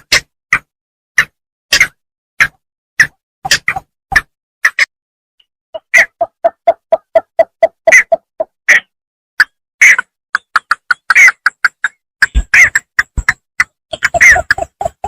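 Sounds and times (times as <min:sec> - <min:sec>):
bittern calling: 0:05.8 - 0:08.9, 0:09.8 - 0:15.0.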